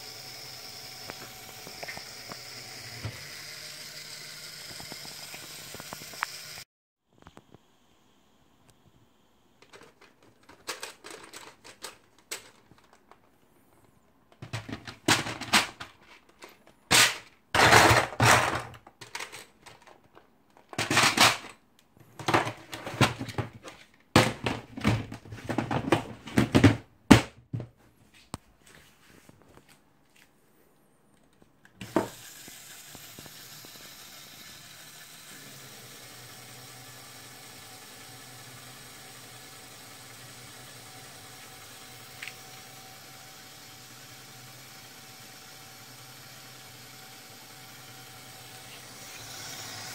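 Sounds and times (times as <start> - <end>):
small electric motor running: 0.0 - 6.7, 31.8 - 49.9
plastic parts clattering: 9.6 - 13.4, 14.3 - 27.3.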